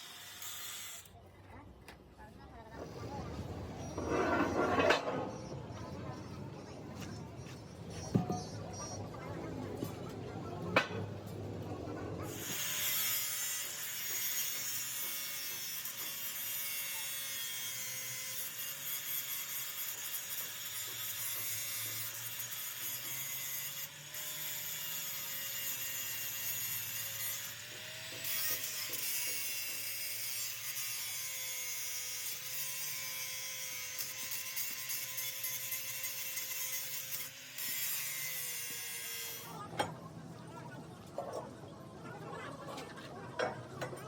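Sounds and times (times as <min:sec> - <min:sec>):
metal rasping and scraping: 0:03.2 - 0:08.9, 0:12.3 - 0:39.6.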